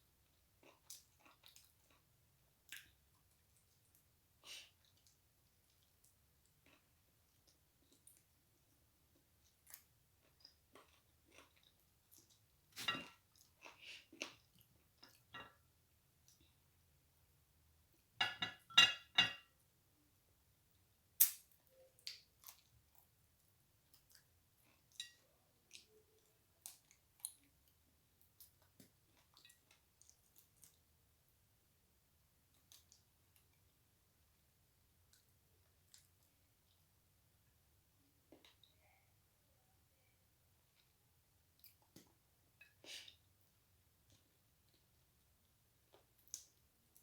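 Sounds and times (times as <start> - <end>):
wet mouth clicks and chewing: 28.2 - 30.8, 32.5 - 33.6.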